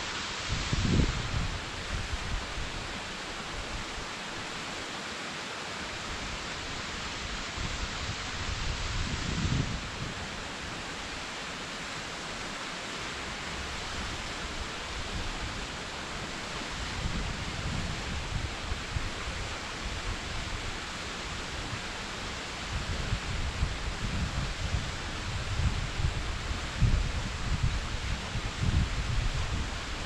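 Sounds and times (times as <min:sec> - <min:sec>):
waterfall rushing: 0:00.0 - 0:24.0
wind buffeting microphone: 0:00.4 - 0:02.9, 0:07.3 - 0:10.3, 0:16.8 - 0:20.7, 0:22.7 - 0:30.0.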